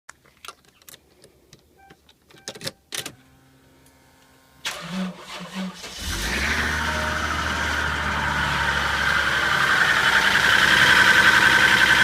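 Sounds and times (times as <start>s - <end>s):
starter cranking car engine: 4.6s - 6.9s
car engine running: 6.0s - 12.0s.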